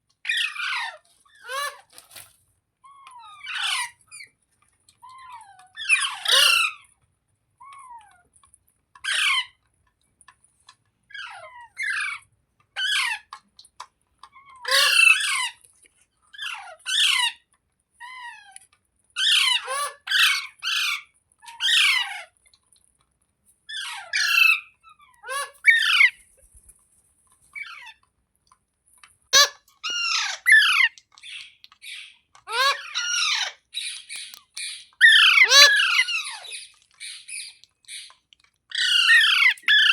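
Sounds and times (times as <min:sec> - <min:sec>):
parakeet squawking: 0:05.8 - 0:06.8, 0:14.6 - 0:15.5, 0:23.8 - 0:26.2, 0:29.4 - 0:38.1, 0:38.7 - 0:39.9.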